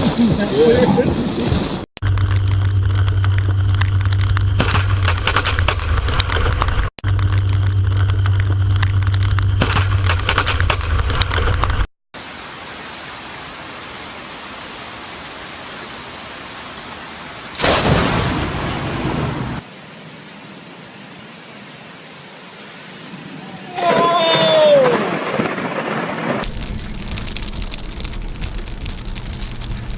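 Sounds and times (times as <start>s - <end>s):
steady rain: 0.0s - 9.6s, 10.7s - 29.9s
close thunderclap: 17.5s - 19.6s, 23.9s - 28.6s.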